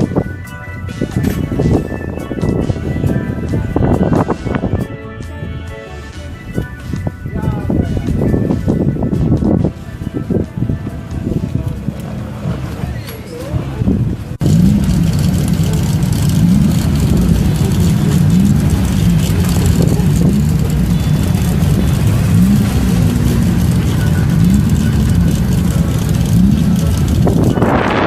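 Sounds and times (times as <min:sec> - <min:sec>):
racing car engine running hard: 0:08.1 - 0:28.0.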